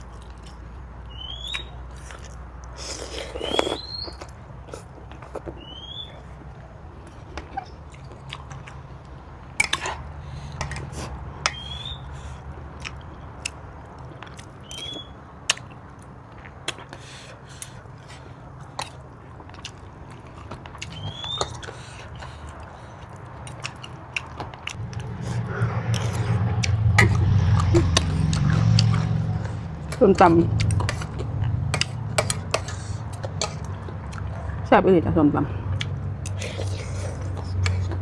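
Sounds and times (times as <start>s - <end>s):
mouth clicks and smacks: 1.4s - 5.6s, 12.8s - 17.8s, 20.4s - 34.4s, 35.8s - 38.0s
chewing: 1.5s - 34.6s, 35.7s - 38.0s.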